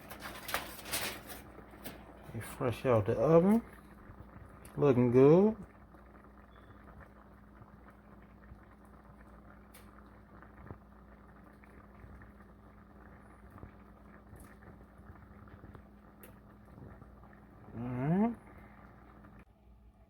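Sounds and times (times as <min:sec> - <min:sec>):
food crackling and bubbling: 0:00.0 - 0:20.0
steady low hum: 0:00.0 - 0:20.0.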